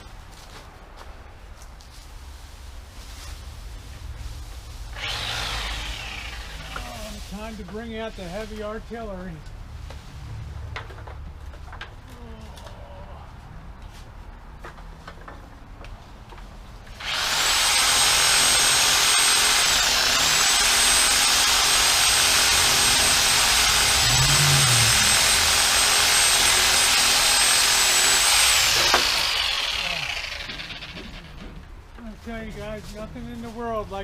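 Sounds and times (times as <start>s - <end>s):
reciprocating saw cutting branches: 4.9s - 7.6s, 16.9s - 31.4s.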